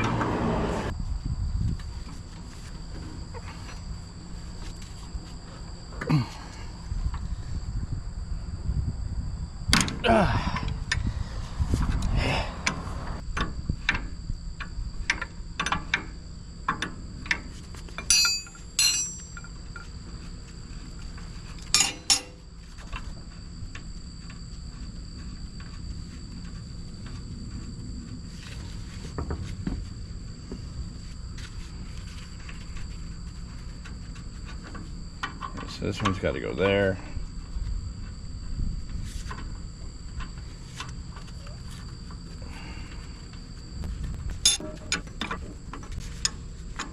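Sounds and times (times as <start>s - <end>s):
insects trilling: 0.0s - 46.9s
metal tools clinking: 18.0s - 19.9s, 21.7s - 22.4s, 44.4s - 45.4s.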